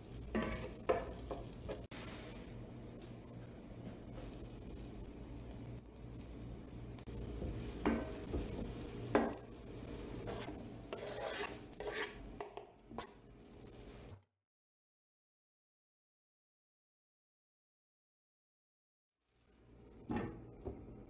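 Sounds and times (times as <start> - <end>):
vegetables sizzling in oil: 0.0 - 14.2, 19.2 - 21.0
wooden spoon scraping a pan: 0.3 - 2.5, 7.4 - 13.2.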